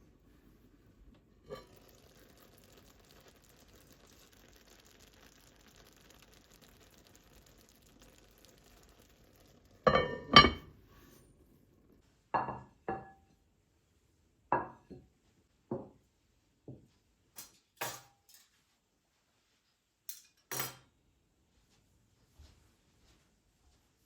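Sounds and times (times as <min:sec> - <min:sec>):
dishes clinking: 0:09.9 - 0:10.7, 0:17.4 - 0:18.5, 0:20.1 - 0:20.9.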